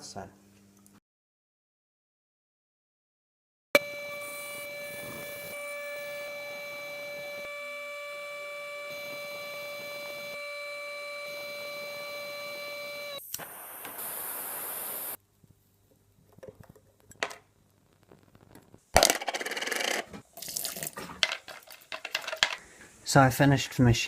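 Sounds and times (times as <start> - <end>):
router spindle whining: 3.8 - 15.2
small parts clattering: 18.5 - 22.6.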